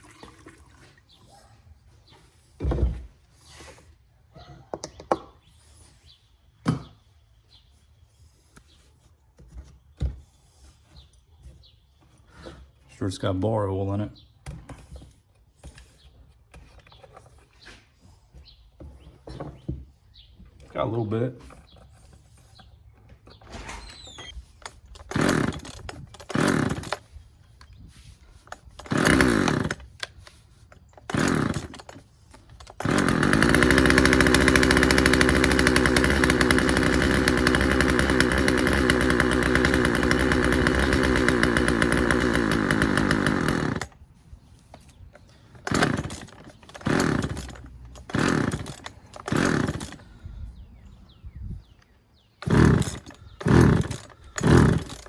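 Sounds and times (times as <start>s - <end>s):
chainsaw pull-start cranking: 23.3s - 27.2s, 28.4s - 44.0s, 45.5s - 50.1s, 52.4s - 55.0s
chainsaw engine running: 25.0s - 27.1s, 28.8s - 30.2s, 31.0s - 44.0s, 45.6s - 50.1s, 52.4s - 55.0s.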